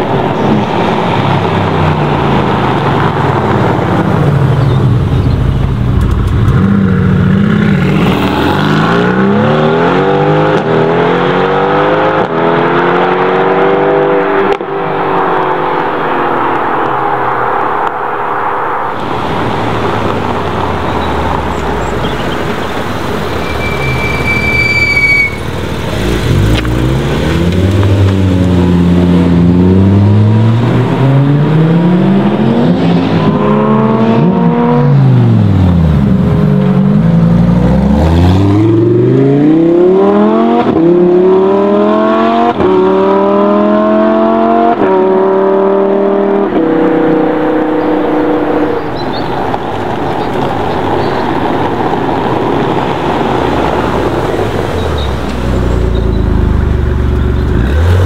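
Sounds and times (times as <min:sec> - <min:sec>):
sports car engine revving: 0:25.7 - 0:49.0, 0:52.7 - 0:58.0.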